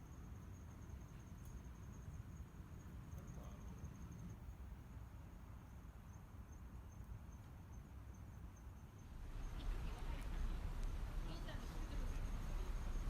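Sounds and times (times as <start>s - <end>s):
crickets trilling: 0.0s - 13.0s
low outdoor rumble: 9.0s - 13.0s.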